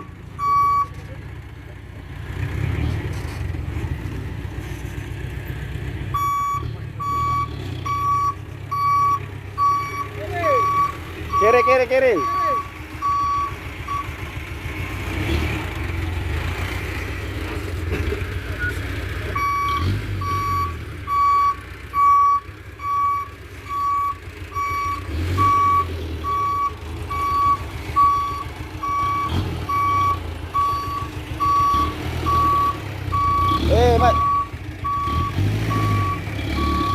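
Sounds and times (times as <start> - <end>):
reversing alarm beeping: 0.0 - 0.9, 6.2 - 14.2, 19.4 - 36.9
truck engine running: 0.0 - 36.9.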